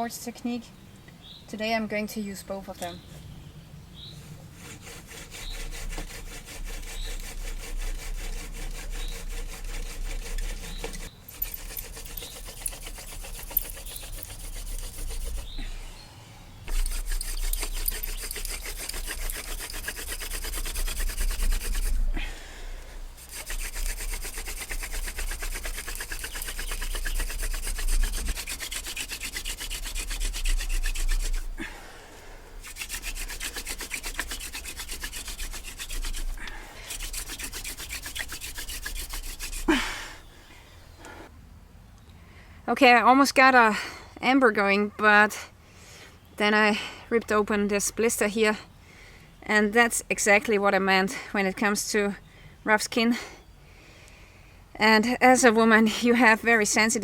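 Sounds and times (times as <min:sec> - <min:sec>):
wooden spindle rasping on hearth board: 0:04.2 - 0:15.7, 0:16.6 - 0:22.2, 0:23.0 - 0:31.8, 0:32.5 - 0:40.3.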